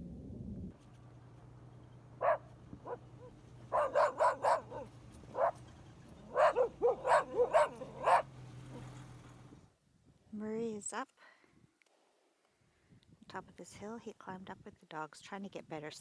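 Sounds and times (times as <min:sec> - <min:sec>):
dog barking: 0:01.7 - 0:09.6.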